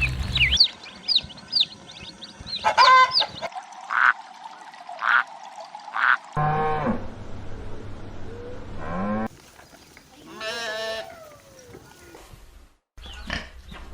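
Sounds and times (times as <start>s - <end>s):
duck quacks: 2.6s - 4.2s
farm animal bleating: 10.2s - 11.5s.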